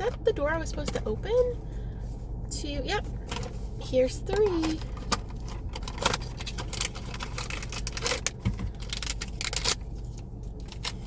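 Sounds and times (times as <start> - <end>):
packaging crinkling and tearing: 4.6 - 11.0.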